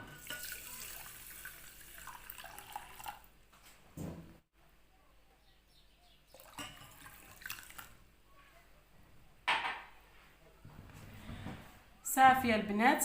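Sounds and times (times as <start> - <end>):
water pouring into saucepan: 0.2 - 3.3, 6.3 - 8.0
water splashing and dripping: 6.3 - 8.0.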